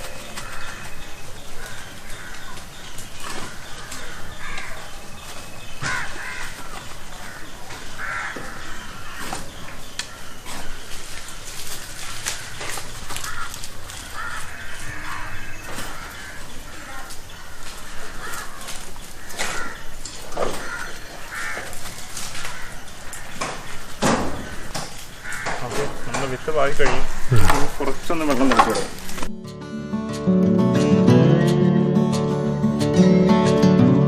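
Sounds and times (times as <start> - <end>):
crows cawing: 0.0 - 29.3
clicks and rustles: 5.3 - 29.3.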